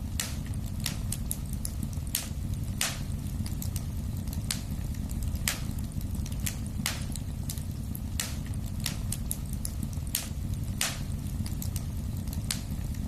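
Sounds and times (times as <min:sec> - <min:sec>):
flames rumbling: 0:00.0 - 0:13.0
wood fire popping: 0:00.0 - 0:13.0.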